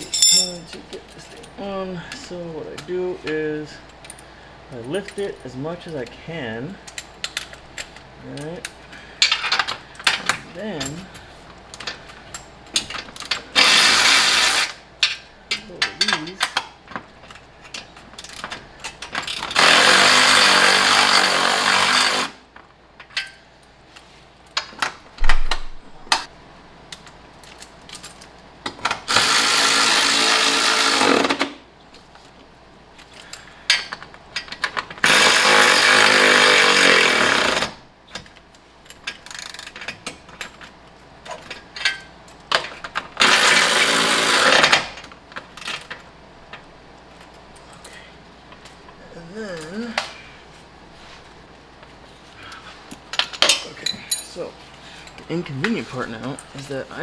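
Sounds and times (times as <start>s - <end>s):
tools clanking and clicking: 0.0s - 1.6s, 15.0s - 19.7s, 38.1s - 43.5s, 52.9s - 54.4s
power tool driving bolts: 13.3s - 14.8s, 19.2s - 22.4s, 29.1s - 31.6s, 35.0s - 37.8s, 43.2s - 45.0s.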